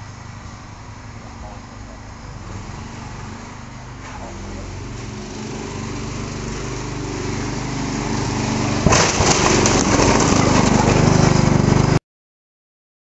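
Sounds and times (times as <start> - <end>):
lawn mower engine running: 0.0 - 12.0
television smashing crash: 8.8 - 11.0
crunching and clattering: 8.8 - 11.5.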